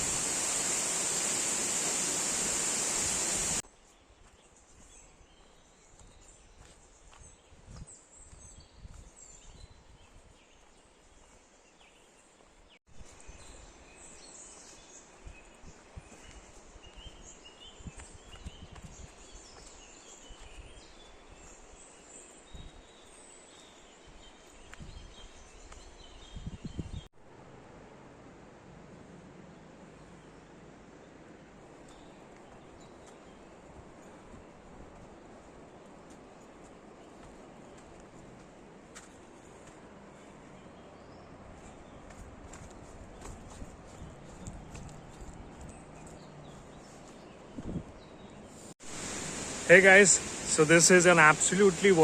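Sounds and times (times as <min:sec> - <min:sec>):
rushing water: 0:00.0 - 0:03.6, 0:48.8 - 0:52.0
birds chirping faintly: 0:29.4 - 0:52.0.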